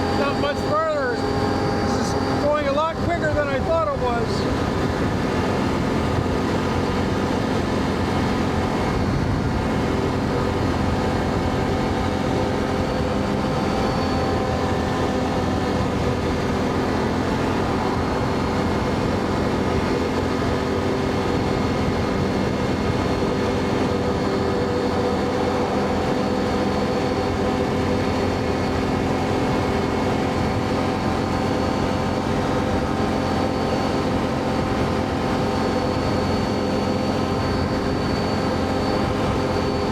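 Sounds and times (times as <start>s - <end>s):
road and wind noise: 0.0s - 39.9s
atv engine cruising: 4.4s - 39.9s.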